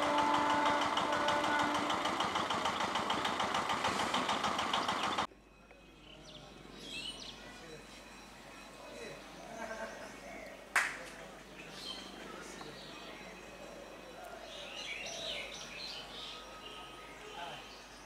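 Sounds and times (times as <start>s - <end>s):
train wheels clattering: 0.0s - 5.3s
quiet outdoor background: 0.0s - 18.0s.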